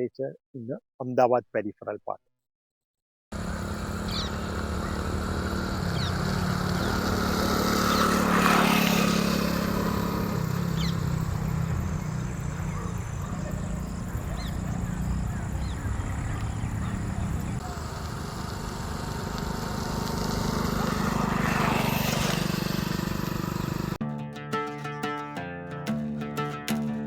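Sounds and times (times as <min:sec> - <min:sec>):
steady engine hum: 0:03.3 - 0:24.0
vehicle passing: 0:03.4 - 0:24.0.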